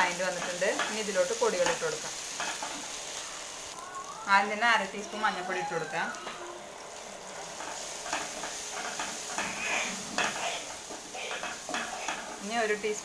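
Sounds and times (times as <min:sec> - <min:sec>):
masala sizzling in oil: 0:00.0 - 0:13.0
spoon scraping and tapping pan: 0:00.2 - 0:02.9, 0:07.6 - 0:12.5.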